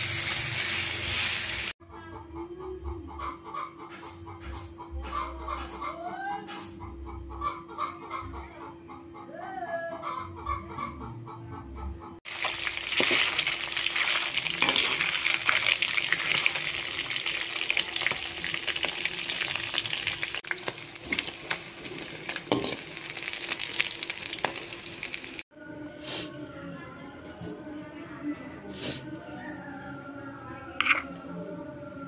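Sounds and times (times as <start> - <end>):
chicken frying in hot oil: 0.0 - 1.8, 12.2 - 25.4.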